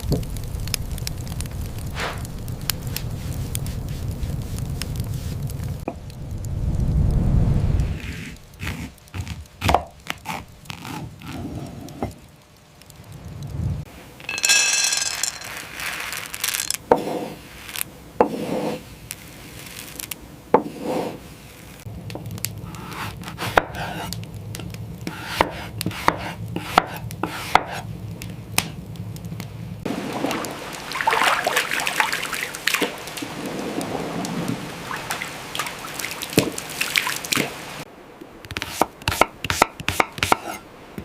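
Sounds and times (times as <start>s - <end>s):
knife chopping on wooden board: 25.1s - 27.8s.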